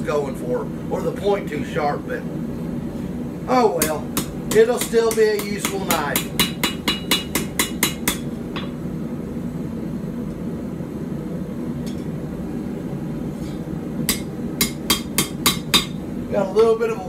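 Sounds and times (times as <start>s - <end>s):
steady low hum: 0.0s - 17.0s
hammer striking blade on anvil: 3.8s - 8.8s, 14.1s - 16.0s.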